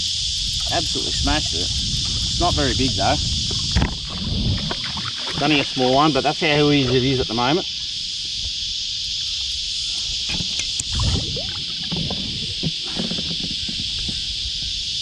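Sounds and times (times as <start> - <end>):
high insect drone: 0.0 - 15.0
knocks and thumps on a kayak: 1.4 - 5.5, 10.3 - 14.2.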